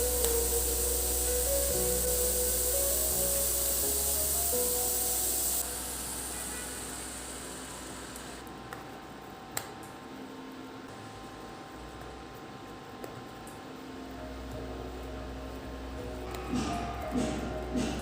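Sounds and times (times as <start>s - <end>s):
loud hiss: 0.0s - 8.4s.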